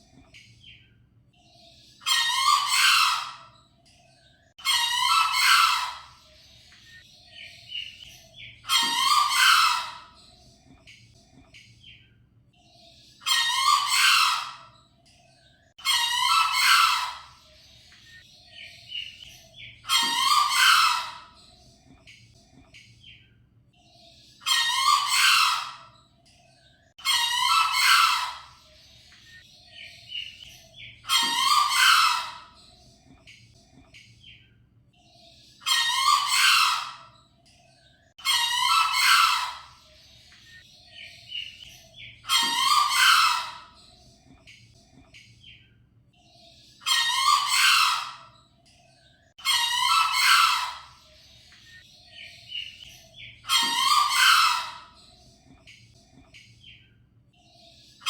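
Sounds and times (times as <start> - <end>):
junglefowl crowing: 2.1 - 3.4, 4.6 - 6.1, 8.7 - 10.0, 13.3 - 14.6, 15.8 - 17.3, 19.9 - 21.2, 24.5 - 25.8, 27.0 - 28.5, 31.1 - 32.4, 35.7 - 37.0, 38.2 - 39.7, 42.3 - 43.6, 46.9 - 48.2, 49.4 - 50.9, 53.5 - 54.9.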